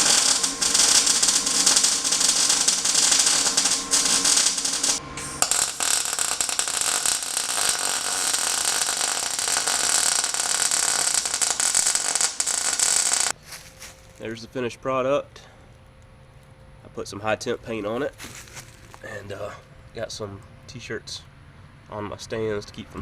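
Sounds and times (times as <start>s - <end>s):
welding arc crackling: 0.0s - 13.4s.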